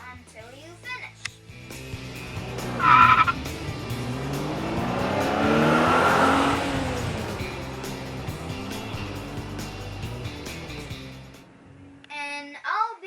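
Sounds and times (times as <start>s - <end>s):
race car passing by: 1.8s - 12.0s.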